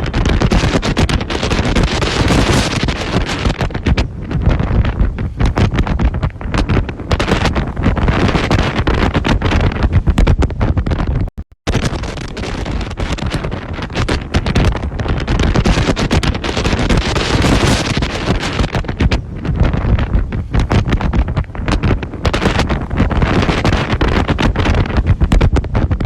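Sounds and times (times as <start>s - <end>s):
storm wind buffeting microphone: 0.0s - 26.0s.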